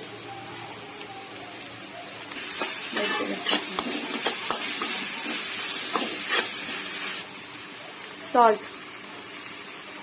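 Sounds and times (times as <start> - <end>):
vegetables sizzling in a pan: 0.0 - 10.0
spatula scraping and clicking on pan: 2.5 - 6.8.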